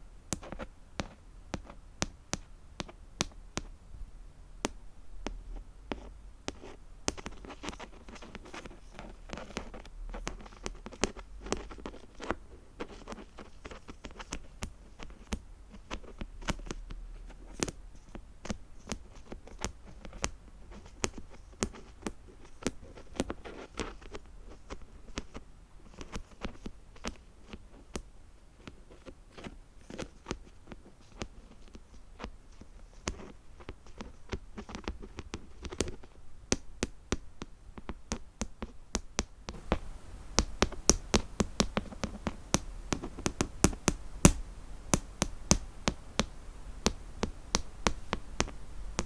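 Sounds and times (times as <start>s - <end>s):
fingernails tapping and scratching: 4.6s - 49.0s.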